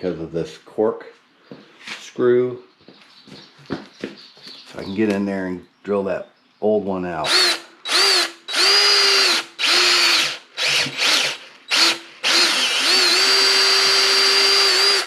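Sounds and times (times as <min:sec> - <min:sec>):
electric drill drilling: 0:07.2 - 0:15.0.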